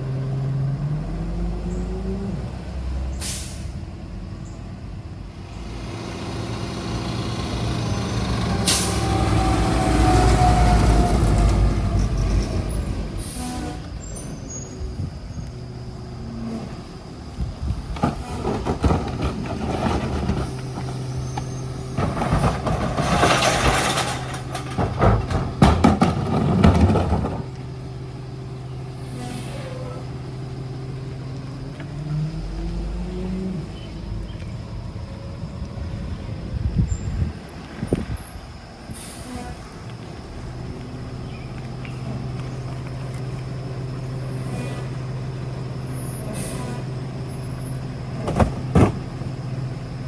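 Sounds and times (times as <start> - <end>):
garbage truck engine running: 0.0 - 50.0
loud clattering and banging: 17.9 - 27.6, 48.2 - 49.2.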